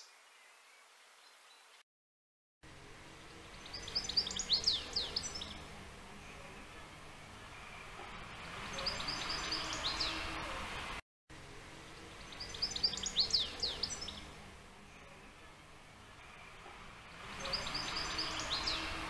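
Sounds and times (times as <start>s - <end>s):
outdoor background noise: 2.6s - 19.0s
songbird singing high notes: 17.4s - 19.0s.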